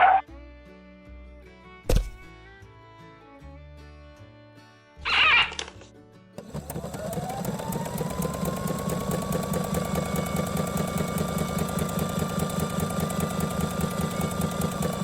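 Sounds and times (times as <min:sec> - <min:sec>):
electric motor whine: 0:06.4 - 0:15.0
fast gear rattle: 0:06.4 - 0:15.0.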